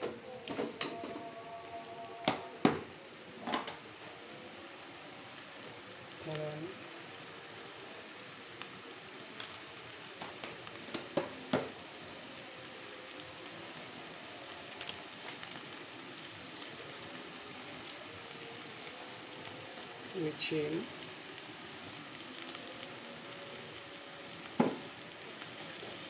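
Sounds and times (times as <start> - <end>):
vegetables sizzling in a wok: 0.0 - 26.0
sharp pops and crackles: 9.4 - 11.8.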